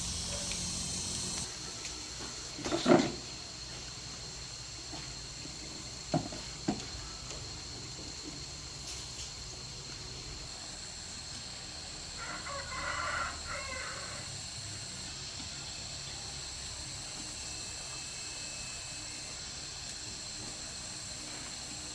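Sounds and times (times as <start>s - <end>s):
high-pitched whine: 0.0s - 2.2s
rooster crowing: 12.2s - 14.4s.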